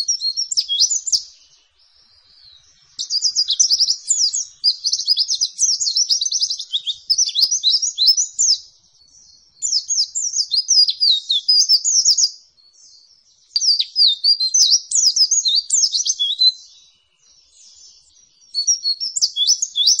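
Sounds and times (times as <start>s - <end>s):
white-eye chirping: 3.0s - 8.6s.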